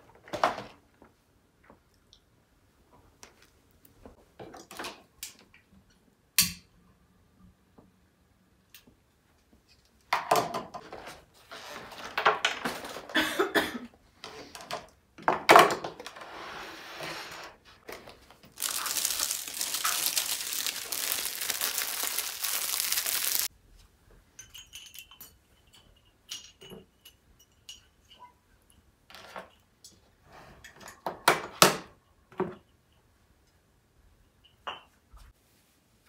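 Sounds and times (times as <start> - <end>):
crinkling: 17.9 - 23.5.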